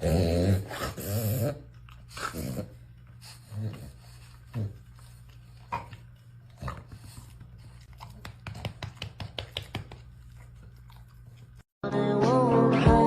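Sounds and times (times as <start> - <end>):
dog chewing: 1.5 - 11.6.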